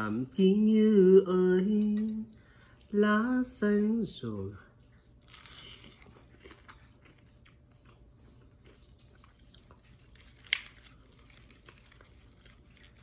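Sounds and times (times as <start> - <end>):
biting into crispy food: 5.2 - 13.0
crunchy chewing: 5.2 - 13.0.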